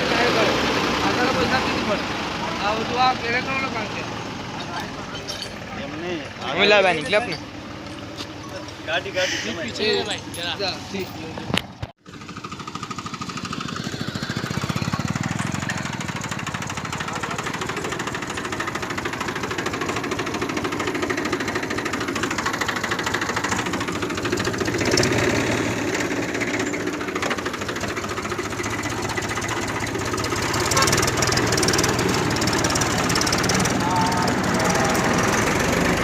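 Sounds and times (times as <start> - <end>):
diesel tractor engine knocking: 11.5 - 36.0.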